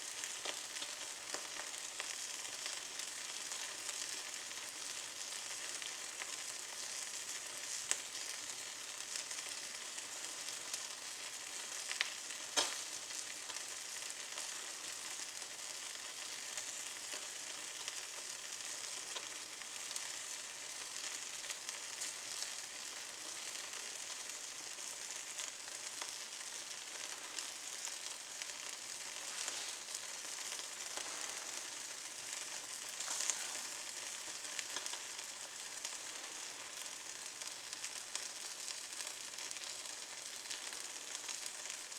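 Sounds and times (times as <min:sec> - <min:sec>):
twigs crackling in fireplace: 0:00.0 - 0:41.9
sharp pops of fire: 0:12.0 - 0:13.2.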